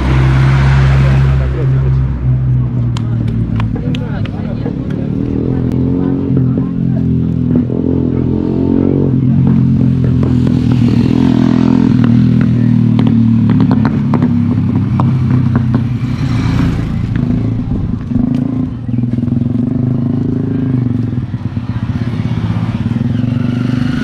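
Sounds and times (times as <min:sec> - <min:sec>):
motorcycle engine idling: 0:09.3 - 0:24.0.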